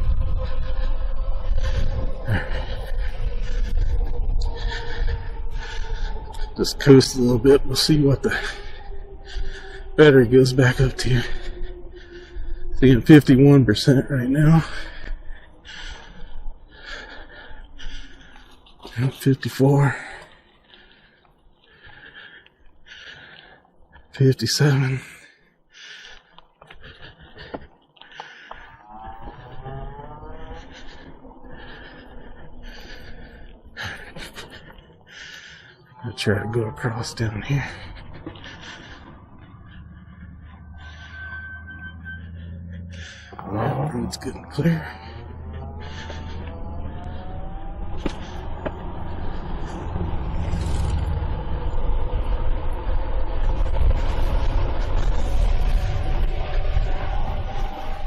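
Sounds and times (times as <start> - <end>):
ride rumble: 0.0 - 58.0
electric motor whining: 39.7 - 58.0.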